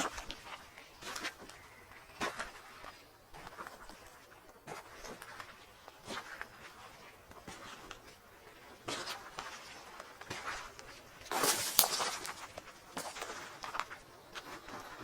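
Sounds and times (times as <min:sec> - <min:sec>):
footsteps on forest floor: 0:10.3 - 0:15.0.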